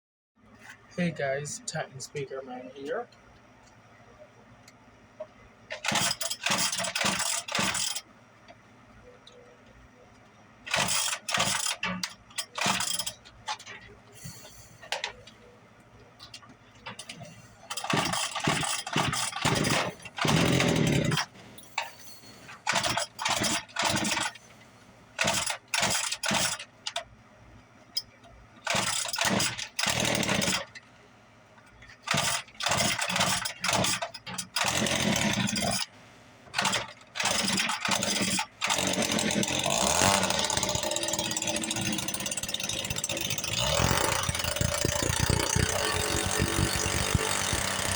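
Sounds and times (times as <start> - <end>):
two-stroke engine starting: 17.1 - 24.4, 28.6 - 30.7, 36.6 - 47.9.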